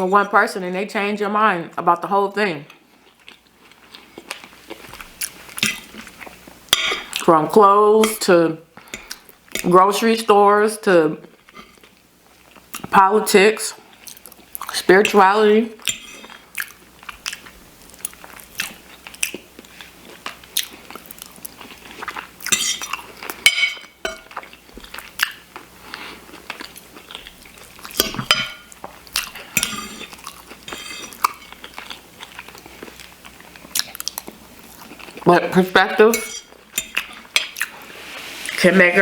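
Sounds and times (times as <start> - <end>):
chewing and mouth sounds: 2.7 - 6.4, 15.8 - 23.4, 24.2 - 28.2, 28.8 - 35.3
fork scraping on dish: 15.9 - 16.4, 22.5 - 22.9, 29.6 - 31.6.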